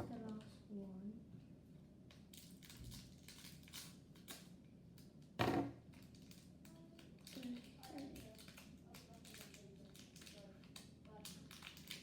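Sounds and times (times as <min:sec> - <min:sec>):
plastic packaging crinkling and tearing: 0:02.3 - 0:04.4, 0:06.1 - 0:12.0.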